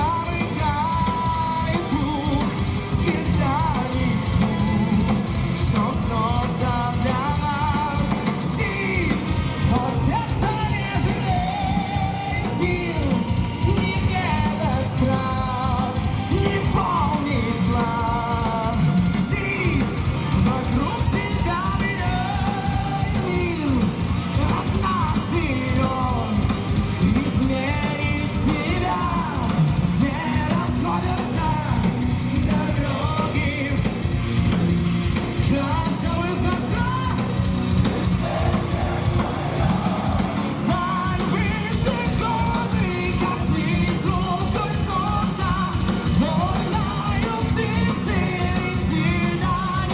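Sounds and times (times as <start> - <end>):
bass guitar: 0.0 - 49.9
distorted electric guitars: 0.0 - 49.9
drums at a driving beat: 0.0 - 49.9
melodic lead guitar line: 0.0 - 49.9.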